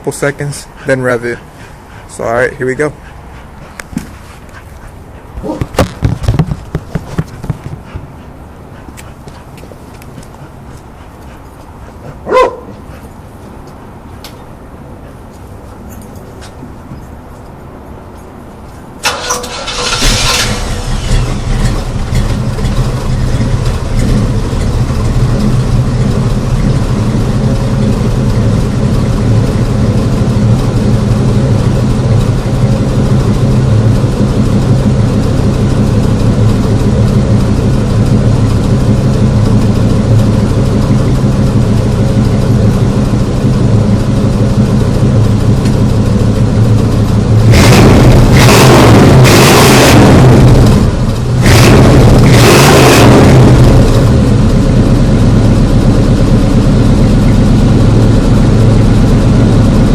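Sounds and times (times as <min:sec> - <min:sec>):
car engine starting and idling: 0:19.0 - 0:59.9.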